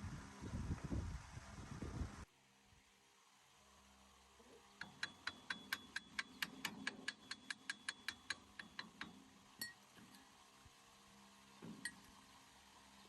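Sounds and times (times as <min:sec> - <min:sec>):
sharp evenly spaced clicks: 0:04.8 - 0:09.8.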